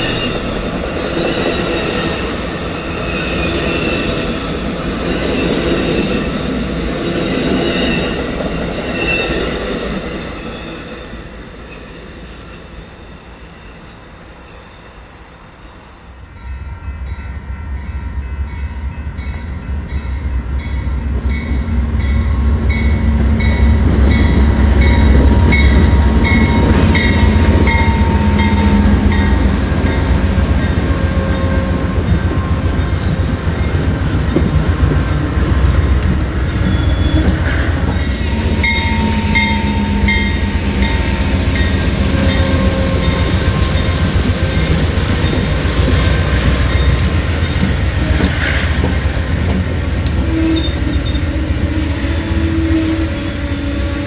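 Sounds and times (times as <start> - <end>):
train rumbling past: 0.0 - 54.0
regular bell ringing: 22.0 - 30.0, 38.0 - 43.2.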